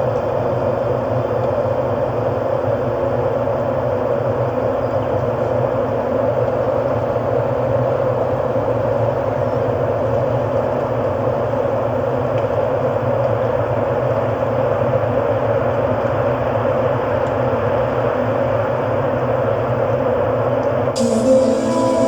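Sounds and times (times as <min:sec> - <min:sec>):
hiss-like ambient wash: 0:21.0 - 0:22.0.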